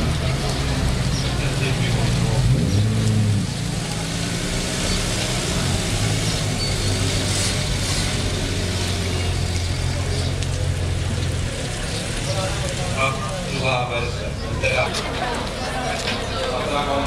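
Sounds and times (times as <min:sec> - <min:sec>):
car engine running at low revs: 0:00.0 - 0:13.0.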